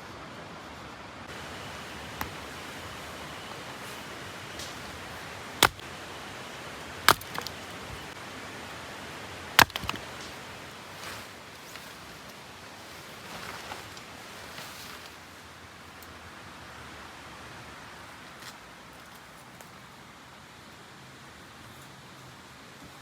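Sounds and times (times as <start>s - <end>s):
steady outdoor hiss: 0.0s - 23.0s
sharp strikes on wood: 5.6s - 5.8s, 7.1s - 7.6s, 9.6s - 10.3s
small knocks: 9.6s - 10.4s.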